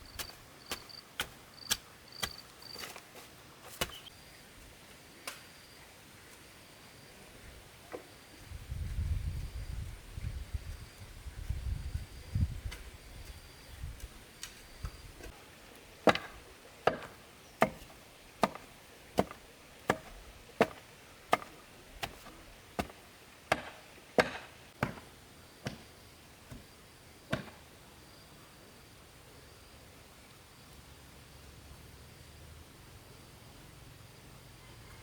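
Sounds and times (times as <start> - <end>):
chopping into bamboo: 0.1 - 3.0, 3.7 - 4.0, 16.1 - 25.9, 27.3 - 27.6.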